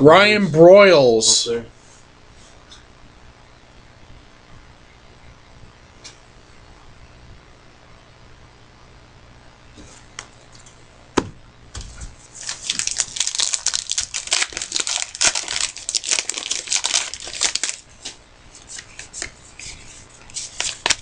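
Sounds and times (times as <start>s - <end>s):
plastic wrapper tearing and crinkling: 12.2s - 17.9s, 20.2s - 21.0s.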